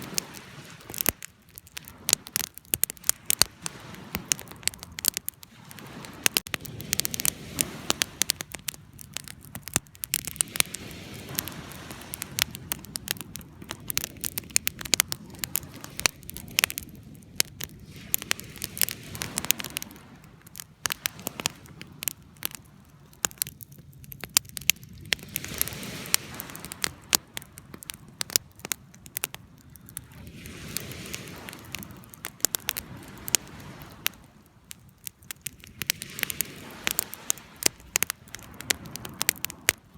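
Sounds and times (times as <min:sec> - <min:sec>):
campfire crackling and popping: 0:00.0 - 0:39.9
rushing of flames: 0:00.0 - 0:39.9.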